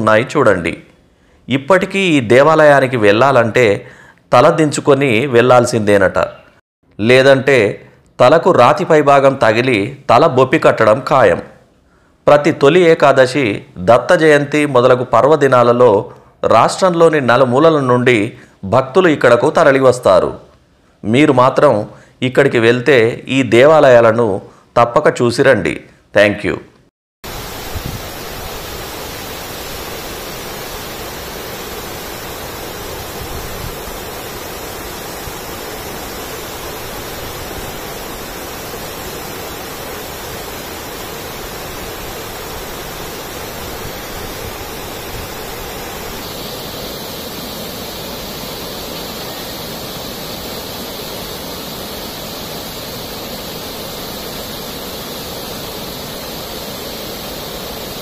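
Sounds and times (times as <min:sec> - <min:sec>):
high water hiss: 0:27.2 - 0:58.0
waterfall rushing: 0:27.2 - 0:58.0.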